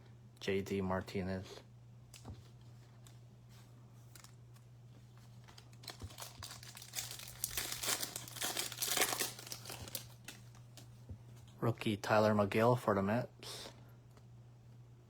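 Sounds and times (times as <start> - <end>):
low electrical hum: 0.0 - 15.0
foil wrapper crinkling and tearing: 5.4 - 10.9.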